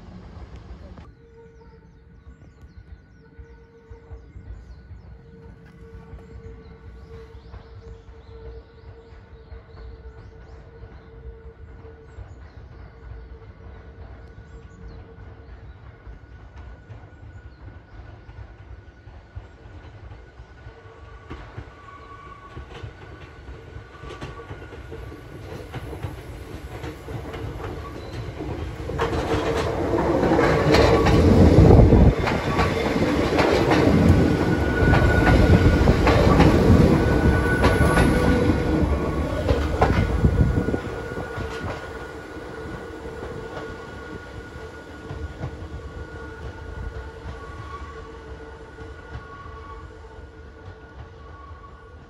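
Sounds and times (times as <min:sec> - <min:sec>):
electric train wheels clattering: 0:12.4 - 0:52.0.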